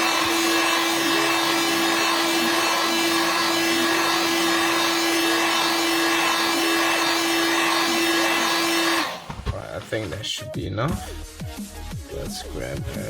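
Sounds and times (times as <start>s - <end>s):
heat gun blowing air: 0.0s - 9.5s.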